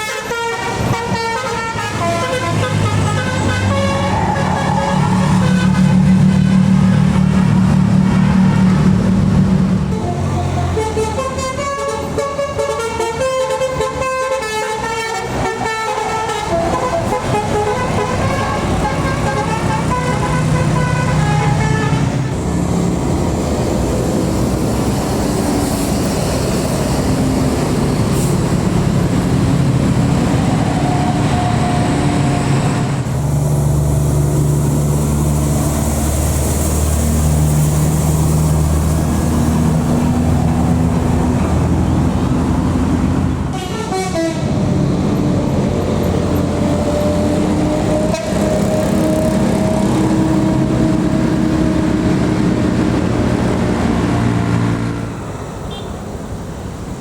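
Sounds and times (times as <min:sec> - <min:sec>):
musical bus horns tooting: 0:00.0 - 0:07.4, 0:08.0 - 0:22.4, 0:43.1 - 0:44.8, 0:46.3 - 0:53.0, 0:53.6 - 0:56.0
diesel bus engine running: 0:00.0 - 0:57.0
deep engine rumble: 0:01.8 - 0:11.3.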